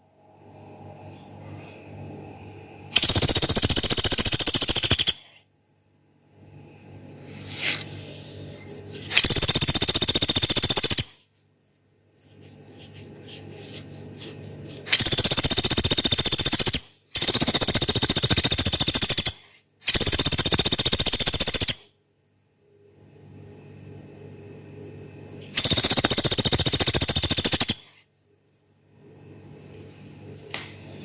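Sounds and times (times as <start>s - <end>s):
woodpecker rattling trills: 3.0s - 5.3s, 9.1s - 11.2s, 14.8s - 21.8s, 25.6s - 27.9s.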